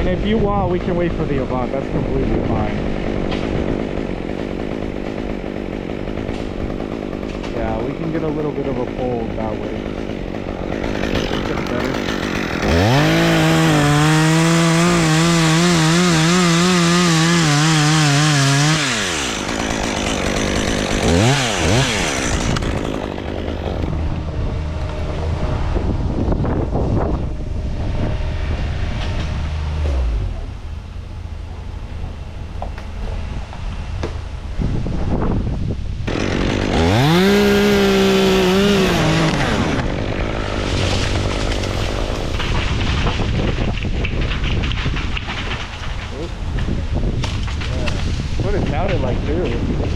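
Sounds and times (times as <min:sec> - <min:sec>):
chainsaw revving: 0:00.0 - 0:26.1, 0:28.6 - 0:30.7, 0:36.0 - 0:42.9.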